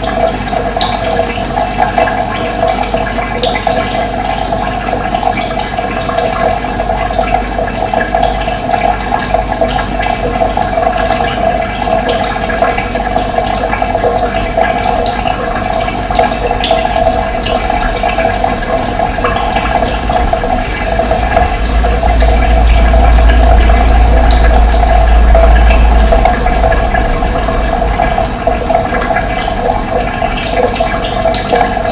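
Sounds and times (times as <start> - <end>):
running water rushing: 0.0 - 31.9
deep rumble: 14.3 - 31.9.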